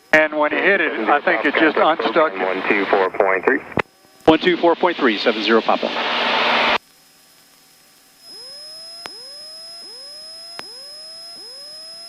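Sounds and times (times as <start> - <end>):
radio static burst: 0.2 - 6.8
steady high whistle: 8.3 - 12.0
faint clicks: 9.0 - 9.2.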